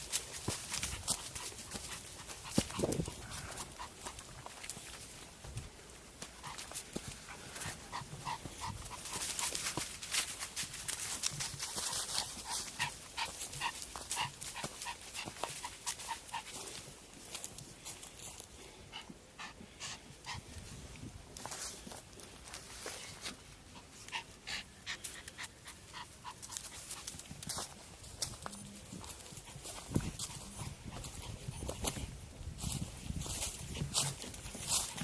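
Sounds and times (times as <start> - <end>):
footsteps on trail: 0.0 - 35.0
dog panting: 0.2 - 5.2, 6.3 - 10.3, 10.9 - 17.0, 18.8 - 20.6, 23.6 - 27.5.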